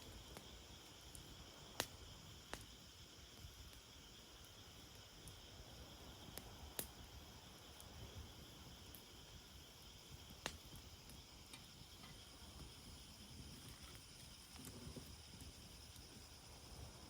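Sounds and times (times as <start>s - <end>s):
fire popping: 0.0s - 17.0s
high-pitched insect chorus: 0.0s - 17.0s
wood fire crackling: 0.0s - 17.0s.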